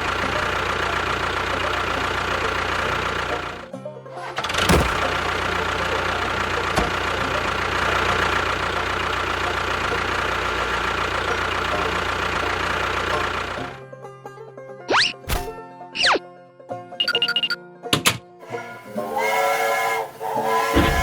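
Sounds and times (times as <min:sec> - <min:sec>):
engine running: 0:00.0 - 0:13.9, 0:18.4 - 0:21.0
sharp click: 0:15.3 - 0:15.6.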